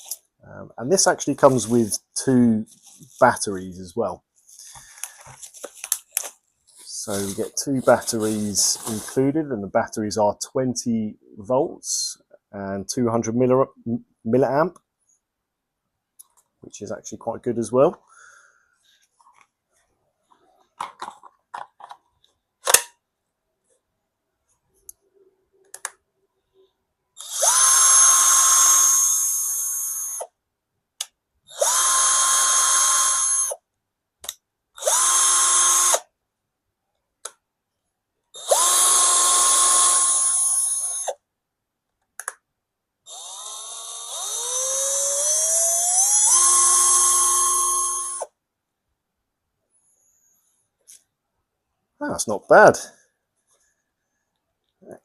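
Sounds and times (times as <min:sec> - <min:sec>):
cordless drill motor whine: 0:27.2 - 0:30.3, 0:31.5 - 0:33.6, 0:34.8 - 0:36.0, 0:38.4 - 0:41.2, 0:43.1 - 0:48.3.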